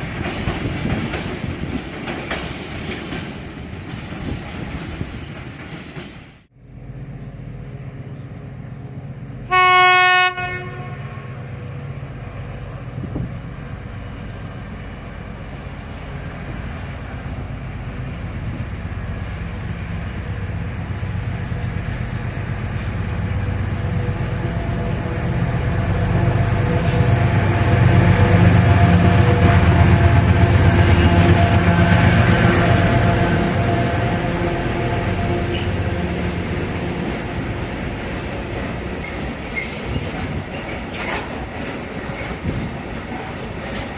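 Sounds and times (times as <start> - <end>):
train running noise: 0.0 - 43.9
locomotive horn blast: 9.4 - 11.6, 23.4 - 37.5.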